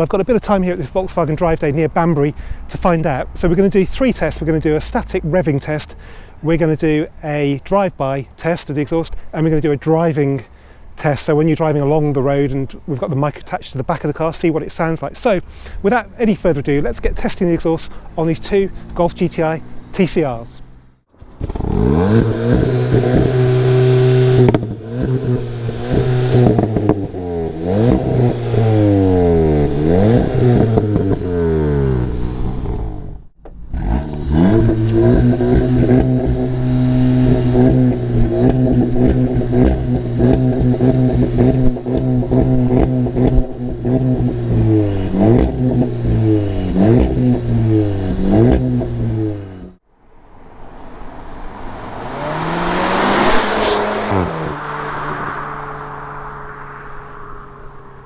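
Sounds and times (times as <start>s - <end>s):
car engine revving: 17.8s - 58.0s.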